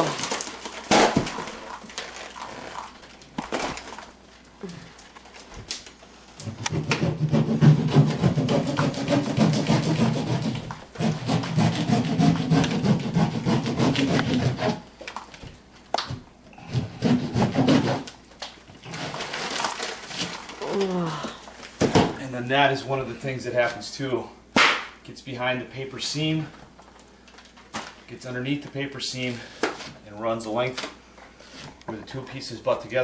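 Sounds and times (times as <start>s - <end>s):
hand saw cutting drywall: 6.4s - 14.9s, 16.6s - 18.2s, 18.8s - 19.6s.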